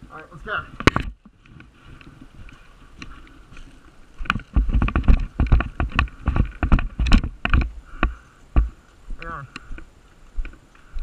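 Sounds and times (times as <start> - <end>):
running footsteps: 0.7 - 11.0
clothing and gear jostling: 1.4 - 8.9.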